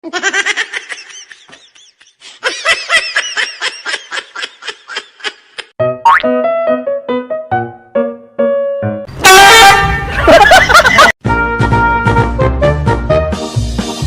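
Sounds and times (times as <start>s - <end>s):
high-pitched laughter: 0.0s - 5.8s, 10.0s - 11.2s
music: 5.8s - 10.4s, 11.2s - 14.0s.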